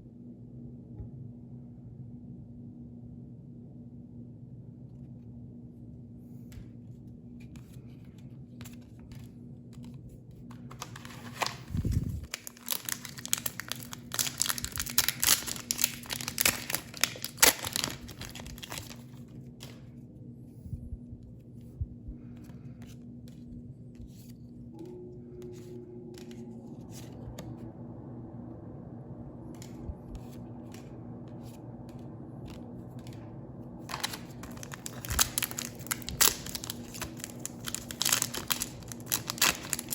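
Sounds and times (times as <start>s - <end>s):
low steady hum: 0.0s - 39.9s
foil wrapper crinkling: 10.6s - 19.3s, 33.8s - 39.9s.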